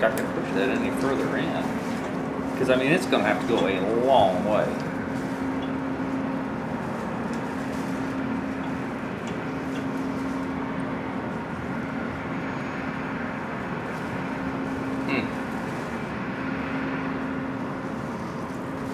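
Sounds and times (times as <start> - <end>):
steady machine hum: 0.0 - 18.9.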